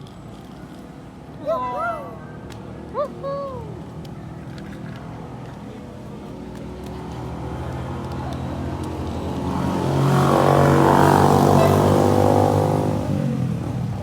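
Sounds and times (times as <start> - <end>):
motorcycle engine passing by: 7.1 - 14.0.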